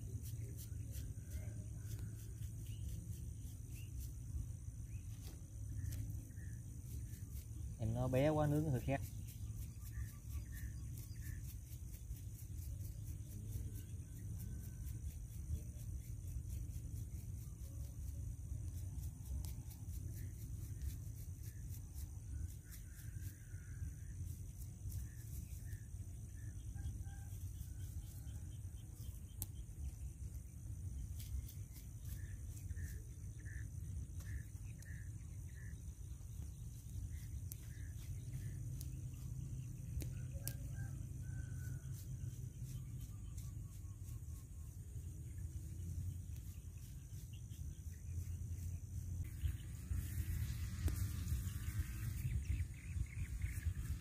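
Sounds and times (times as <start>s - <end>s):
wind rumble on microphone: 41.8s - 54.0s.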